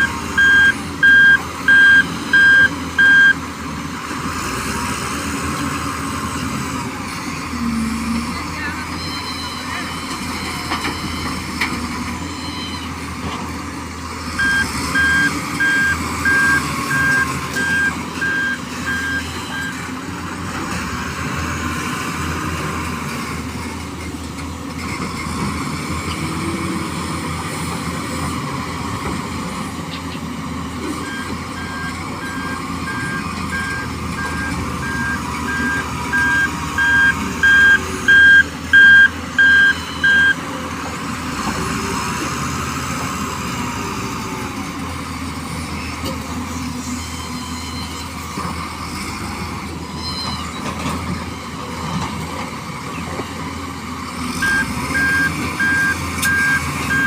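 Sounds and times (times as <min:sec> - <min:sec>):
truck reversing alarm beeping: 0:00.0 - 0:03.6, 0:08.8 - 0:13.1, 0:14.3 - 0:20.1, 0:30.8 - 0:40.8, 0:46.5 - 0:52.2, 0:54.1 - 0:57.0
engine running: 0:00.0 - 0:57.0.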